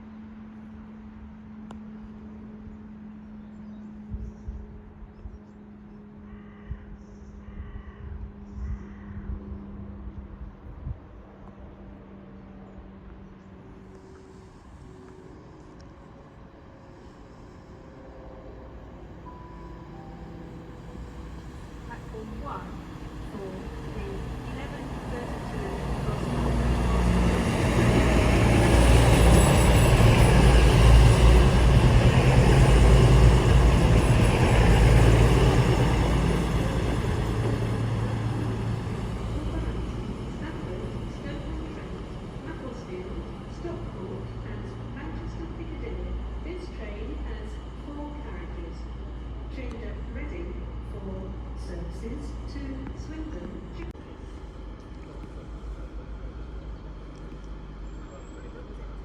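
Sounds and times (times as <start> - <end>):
train humming and rumbling: 0.0 - 59.0.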